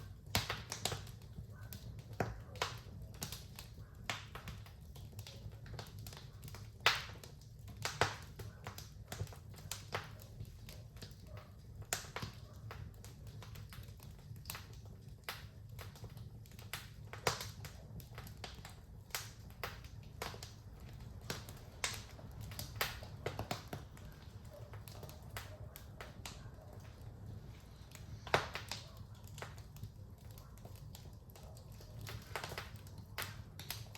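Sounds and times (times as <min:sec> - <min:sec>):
fire pops and snaps: 0:00.0 - 0:33.9
low rumble of burning: 0:00.0 - 0:33.9.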